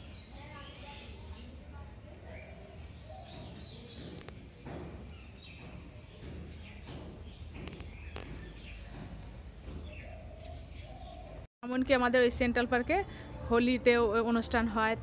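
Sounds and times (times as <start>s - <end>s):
small birds chirping: 0.0s - 11.5s.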